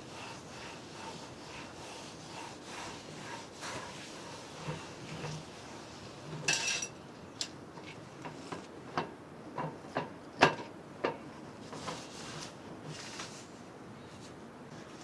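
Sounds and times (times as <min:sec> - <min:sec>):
kitchenware scraping rustle: 0:03.6 - 0:07.0
kitchenware clinks and knocks: 0:06.5 - 0:07.0.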